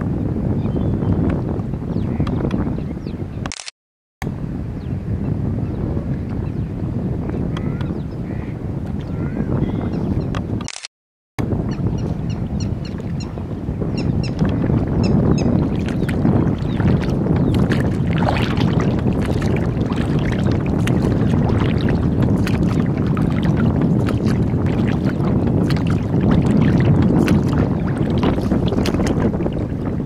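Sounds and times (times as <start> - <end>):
wind rumble on microphone: 0.0 - 30.0
water lapping against boat: 11.6 - 30.0
small sharp splashes: 15.6 - 29.2.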